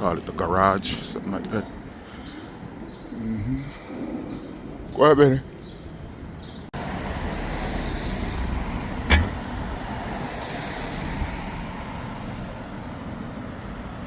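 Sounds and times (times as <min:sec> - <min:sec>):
passing cars: 0:01.8 - 0:14.0
sharp knock: 0:09.1 - 0:09.5.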